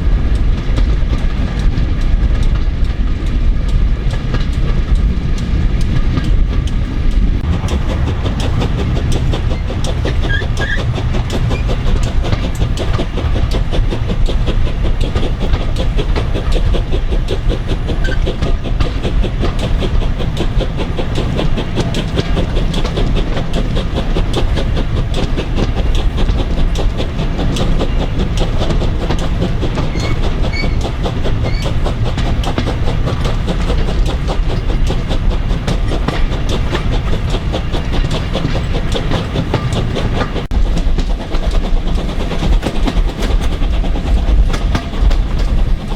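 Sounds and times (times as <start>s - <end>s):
train rumbling at speed: 0.0s - 45.9s
train wheels clattering on rails: 0.0s - 45.9s.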